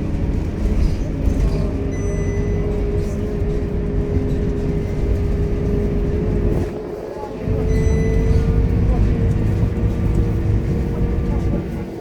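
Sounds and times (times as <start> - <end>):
bus drivetrain and road rumble: 0.0 - 12.0.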